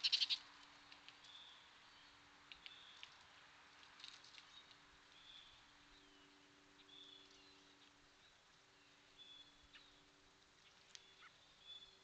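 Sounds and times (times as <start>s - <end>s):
faint bird chirps: 0.0s - 0.4s, 4.4s - 12.0s.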